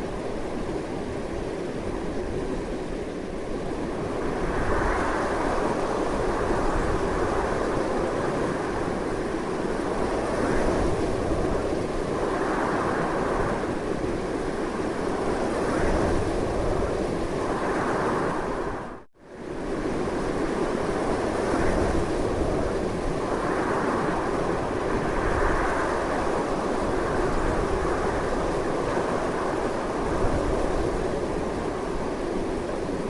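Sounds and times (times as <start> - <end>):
strong gusty wind: 0.0 - 33.0.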